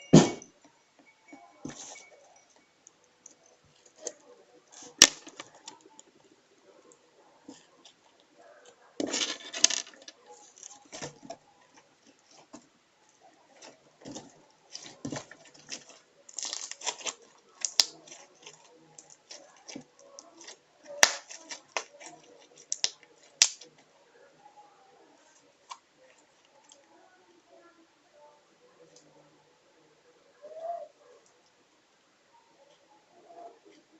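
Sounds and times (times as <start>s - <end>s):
slime squelching and popping: 14.1s - 18.5s.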